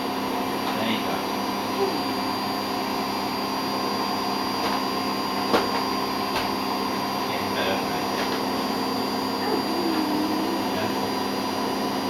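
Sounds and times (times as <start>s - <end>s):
vacuum cleaner humming: 0.0s - 12.0s.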